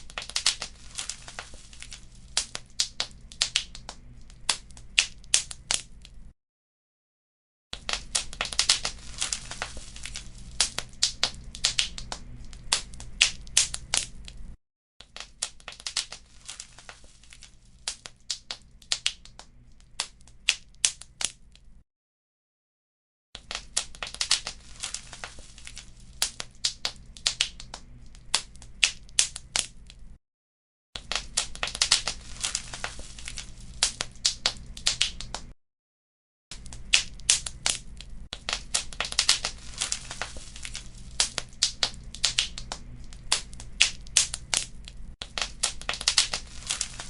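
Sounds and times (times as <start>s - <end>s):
wood fire crackling and popping: 0.0s - 6.2s, 7.8s - 21.4s, 23.4s - 30.1s, 31.0s - 35.6s, 36.6s - 47.0s
flames rumbling: 7.9s - 14.5s, 31.4s - 34.8s, 38.4s - 43.6s.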